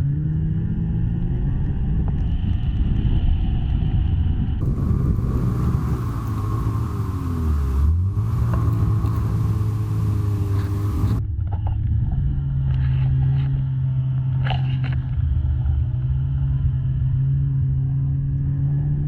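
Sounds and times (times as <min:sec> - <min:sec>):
snowmobile engine running: 0:04.6 - 0:19.0.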